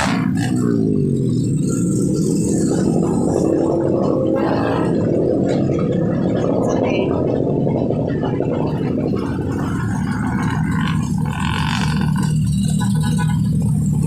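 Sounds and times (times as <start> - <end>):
engine exhaust pulsing: 0.0 - 14.0.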